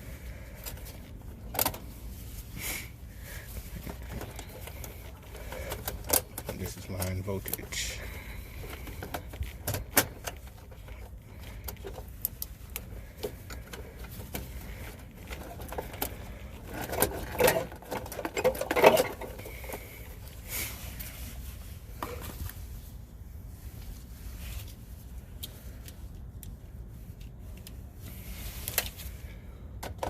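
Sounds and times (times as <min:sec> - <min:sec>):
rustling and scraping: 0:00.0 - 0:30.0
hand tools clicking on wires: 0:03.8 - 0:07.9.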